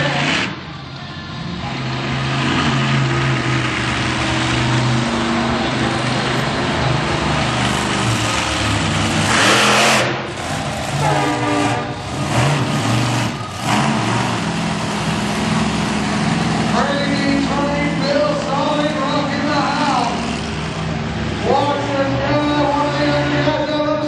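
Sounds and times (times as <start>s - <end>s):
monster truck engine revving: 0.0s - 0.8s, 1.4s - 24.0s.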